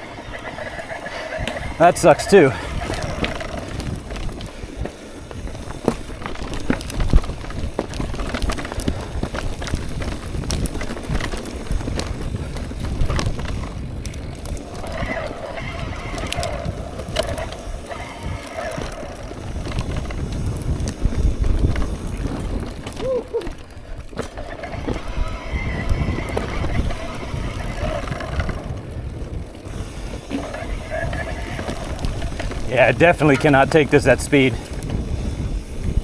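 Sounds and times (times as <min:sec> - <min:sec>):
bike tyres rumbling on trail: 0:00.0 - 0:36.0
faint voices: 0:32.6 - 0:34.6.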